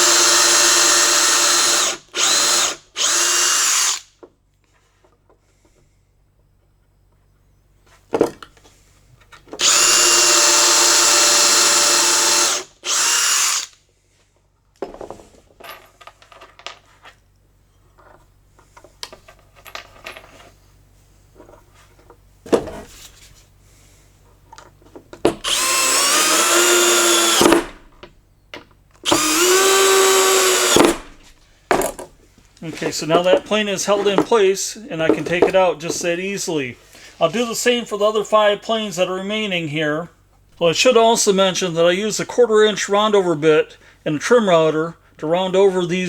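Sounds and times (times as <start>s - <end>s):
power drill drilling into wood: 0.0s - 4.1s, 9.6s - 13.8s, 25.4s - 27.8s, 29.0s - 31.1s
power drill driving screws: 0.0s - 4.1s, 9.6s - 13.8s, 25.3s - 27.8s, 29.0s - 31.2s
handling clicks and knocks: 30.8s - 36.2s.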